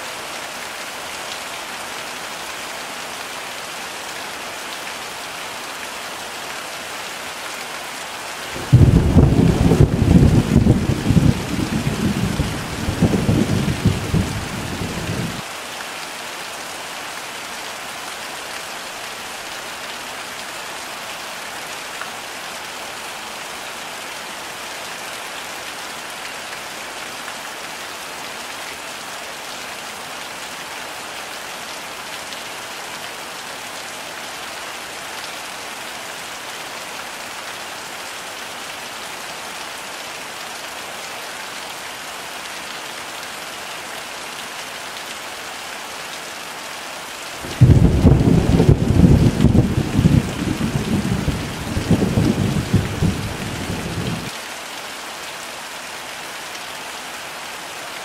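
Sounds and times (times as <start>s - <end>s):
heavy rain falling: 0.0s - 58.0s
low rumble of thunder: 8.6s - 15.4s, 47.5s - 54.3s.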